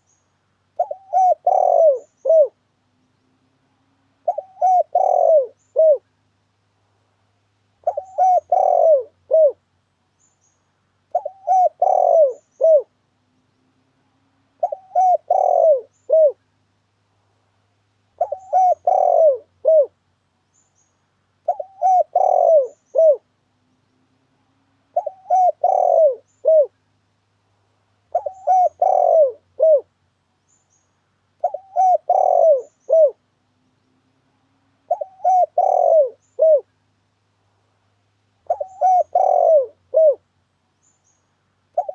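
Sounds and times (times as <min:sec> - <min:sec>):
dove cooing: 0:00.8 - 0:02.6, 0:04.2 - 0:06.1, 0:07.8 - 0:09.6, 0:11.1 - 0:13.0, 0:14.6 - 0:16.4, 0:18.2 - 0:20.0, 0:21.4 - 0:23.4, 0:24.9 - 0:26.8, 0:28.1 - 0:29.9, 0:31.4 - 0:33.3, 0:34.8 - 0:36.7, 0:38.4 - 0:40.2.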